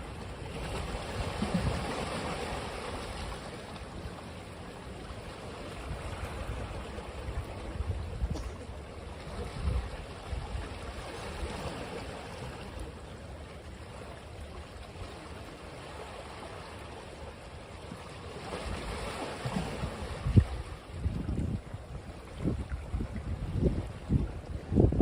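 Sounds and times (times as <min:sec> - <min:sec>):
ocean waves washing onto beach: 0:00.0 - 0:25.0
wind buffeting microphone: 0:05.9 - 0:08.7, 0:09.3 - 0:10.8, 0:19.8 - 0:25.0.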